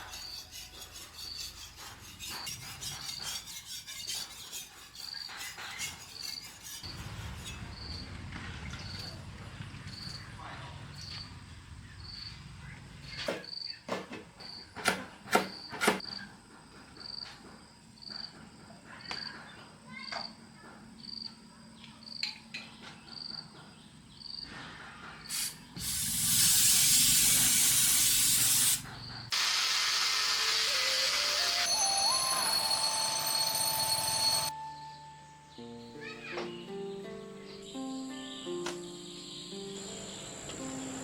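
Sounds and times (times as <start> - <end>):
loud hiss: 25.3 - 32.2
high repeating chirp: 31.6 - 35.2.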